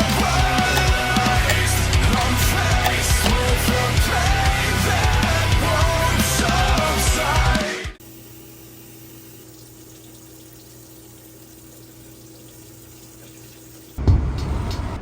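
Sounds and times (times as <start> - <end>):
music: 0.0 - 8.0, 14.0 - 15.0.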